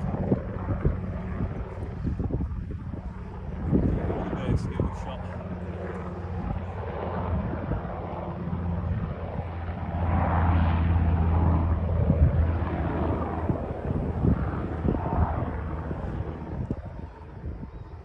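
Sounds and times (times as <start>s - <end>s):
wind thumps on microphone: 0.0s - 5.0s, 11.9s - 17.7s
helicopter flying past: 0.0s - 18.0s.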